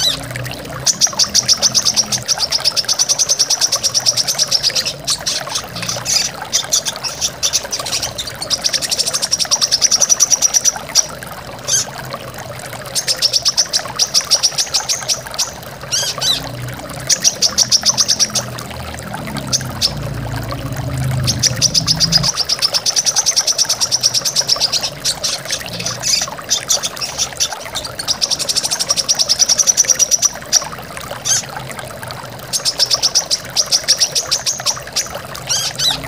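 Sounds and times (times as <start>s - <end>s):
bird trilling: 13.0s - 16.5s, 21.1s - 31.4s
waterfall rushing: 15.6s - 29.6s.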